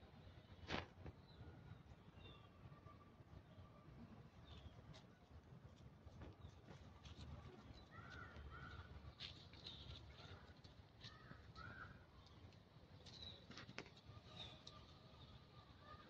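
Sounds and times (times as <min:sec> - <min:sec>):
distant cawing calls: 0:07.9 - 0:08.9, 0:11.0 - 0:12.0.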